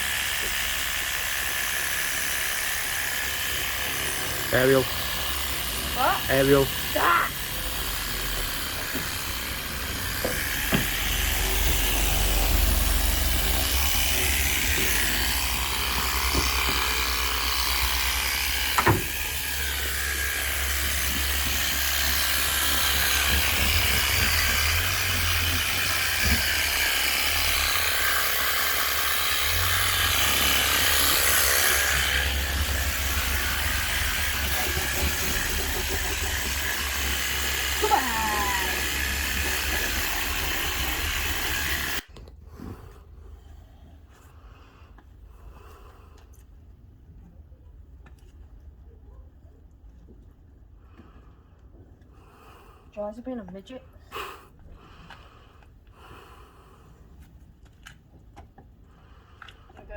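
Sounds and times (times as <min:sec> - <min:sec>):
water spraying onto car: 0:04.0 - 0:17.5.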